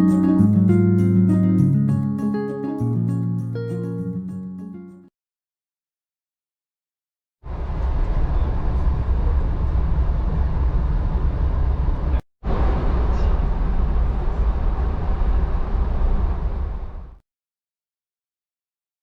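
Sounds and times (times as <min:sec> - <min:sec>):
passenger train rumbling: 0:07.5 - 0:17.2.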